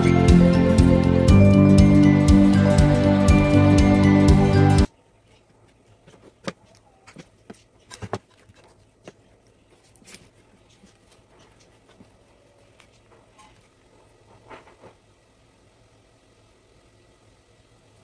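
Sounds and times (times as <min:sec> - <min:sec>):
background music: 0:00.0 - 0:04.9
paper strips tapping and rustling: 0:05.3 - 0:13.7.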